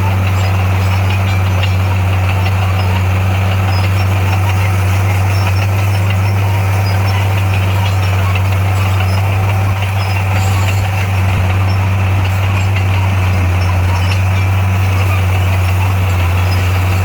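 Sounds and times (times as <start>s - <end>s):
construction machine engine humming: 0.0s - 17.0s.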